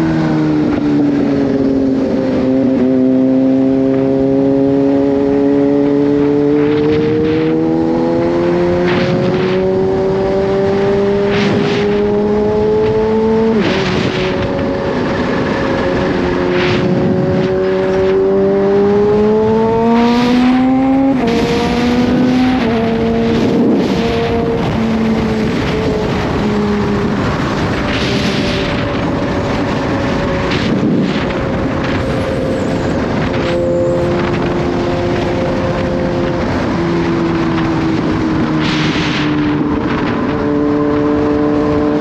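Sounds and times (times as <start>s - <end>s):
motorcycle engine accelerating: 0.0s - 42.0s.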